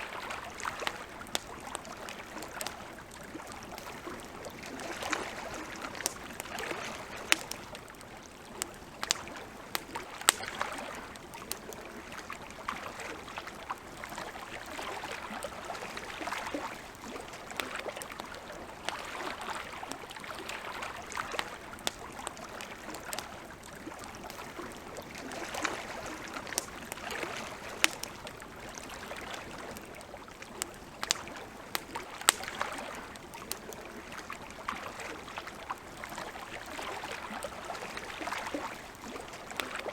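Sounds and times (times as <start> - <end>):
campfire crackling: 0.0 - 39.9
water lapping: 0.0 - 39.9
sharp pops and snaps of fire: 0.5 - 12.8, 21.2 - 34.8.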